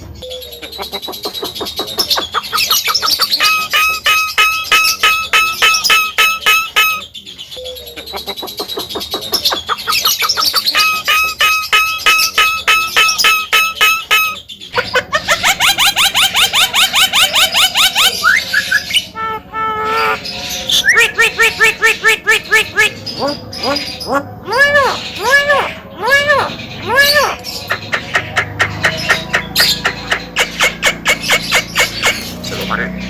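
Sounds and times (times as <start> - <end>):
myna chirping calls: 0.0 - 33.0.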